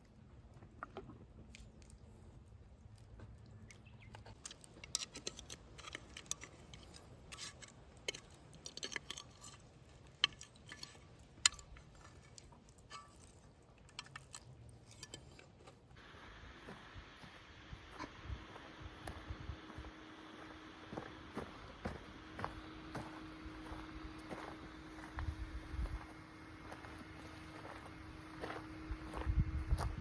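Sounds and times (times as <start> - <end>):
faint steady hiss: 15.9 - 29.4.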